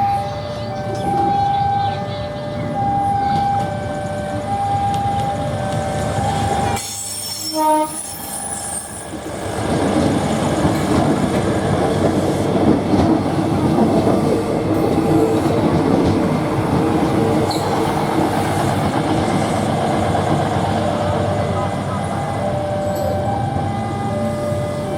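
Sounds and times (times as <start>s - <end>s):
train horn: 7.4s - 8.6s
train wheels clattering over rails: 9.0s - 23.7s.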